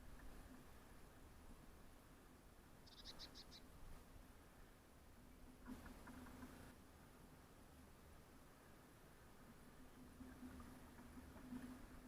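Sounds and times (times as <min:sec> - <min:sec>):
faint outdoor hiss: 0:00.0 - 0:12.0
small bird chirping: 0:02.8 - 0:03.8.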